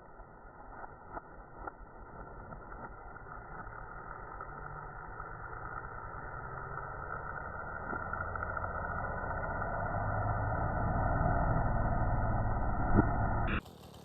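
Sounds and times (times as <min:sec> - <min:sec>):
engine running with low pulsing: 0:00.0 - 0:14.0.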